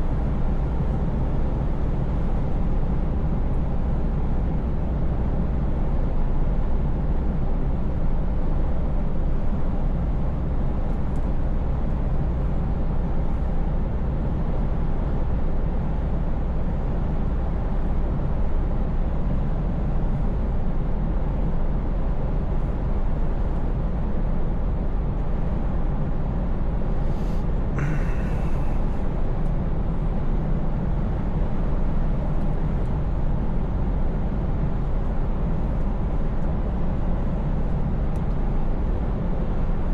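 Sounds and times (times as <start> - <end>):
road noise: 26.8 - 30.2.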